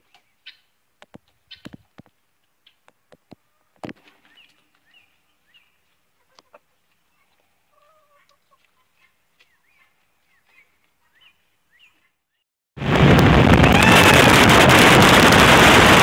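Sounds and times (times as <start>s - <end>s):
chickens clucking: 0.0s - 12.2s.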